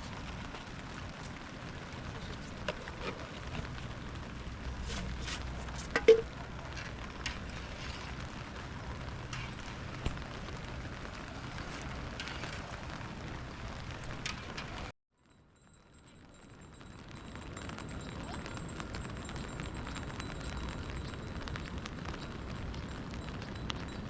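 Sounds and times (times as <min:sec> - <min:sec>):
rain falling: 0:00.0 - 0:14.9, 0:15.6 - 0:24.0
wood fire crackling and popping: 0:00.0 - 0:14.9, 0:15.6 - 0:24.0.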